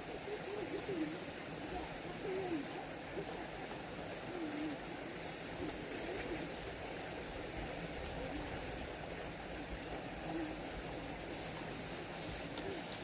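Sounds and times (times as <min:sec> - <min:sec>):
low wavering bird calls: 0:00.0 - 0:13.0
steady hiss: 0:00.0 - 0:13.0.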